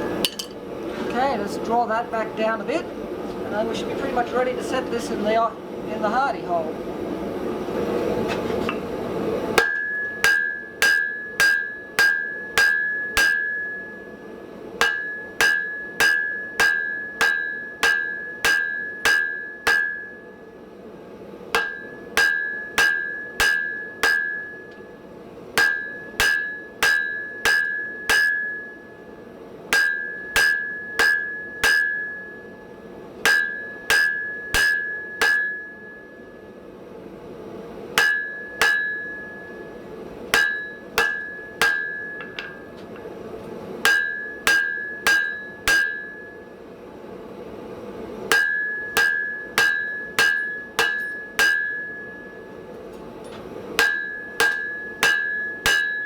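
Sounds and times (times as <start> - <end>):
hammer striking hot steel: 0.0 - 0.6, 8.3 - 20.7, 21.5 - 36.8, 37.6 - 46.7, 48.0 - 56.0
anvil ringing: 0.2 - 0.6, 9.6 - 20.5, 21.6 - 24.9, 25.6 - 29.1, 29.7 - 36.6, 38.0 - 43.1, 43.8 - 46.5, 48.3 - 52.6, 53.8 - 56.0.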